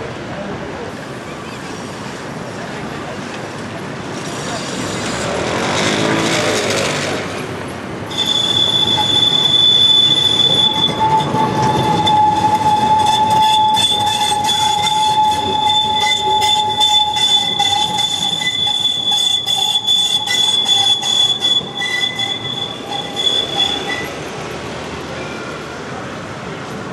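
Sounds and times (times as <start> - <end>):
tram wheels rolling: 0.8 - 26.9
tram wheels squealing: 4.1 - 26.9.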